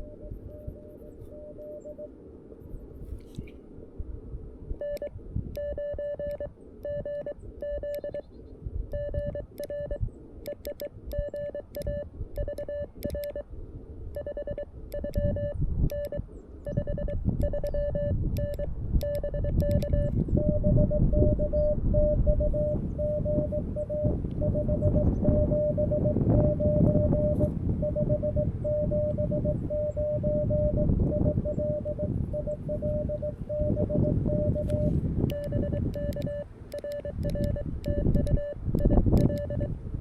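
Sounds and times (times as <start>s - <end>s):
morse code tone: 0.0s - 2.1s, 4.8s - 8.2s, 8.9s - 13.4s, 14.2s - 39.8s
low rumbling noise: 11.0s - 40.0s
paddle key clicks: 34.6s - 39.6s.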